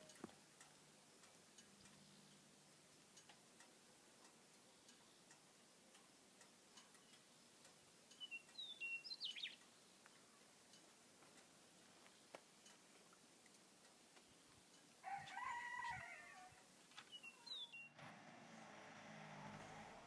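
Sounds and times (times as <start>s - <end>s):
faint ticks: 0.0s - 18.2s
bird chirping: 1.1s - 2.6s, 6.8s - 10.4s, 17.0s - 18.0s.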